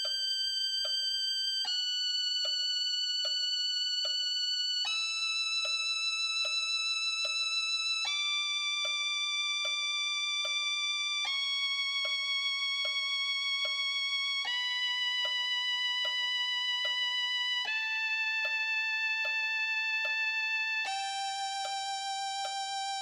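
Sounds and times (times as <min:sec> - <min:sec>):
metronome clicking: 0:08.8 - 0:09.8, 0:11.2 - 0:23.0.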